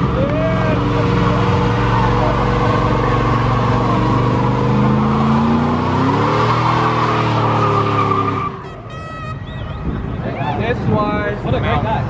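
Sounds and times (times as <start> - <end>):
car engine at high revs: 0.0 - 8.6
tyres screeching: 0.0 - 10.7.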